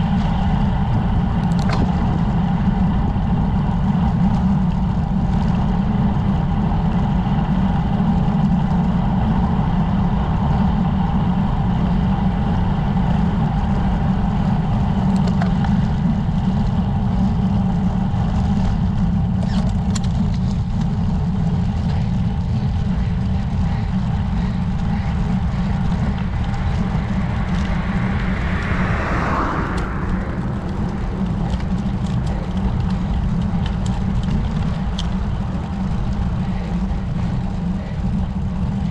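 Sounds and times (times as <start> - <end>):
wind buffeting the microphone: 23.8 - 35.8
whoosh: 24.8 - 33.4.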